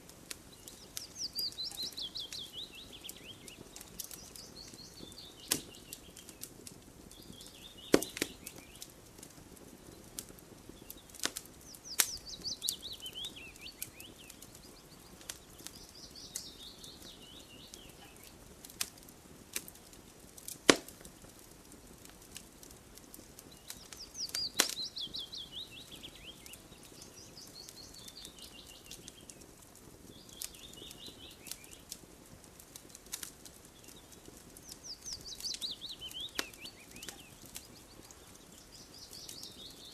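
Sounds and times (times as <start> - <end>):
wood fire crackling and popping: 0.0 - 39.9
bird singing falling phrase: 11.7 - 17.9, 34.0 - 39.9.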